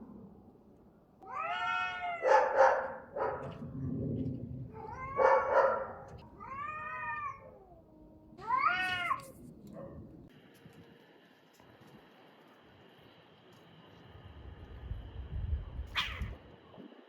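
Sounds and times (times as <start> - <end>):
cats yowling in a fight: 1.2 - 3.6, 4.7 - 9.4, 15.8 - 16.4.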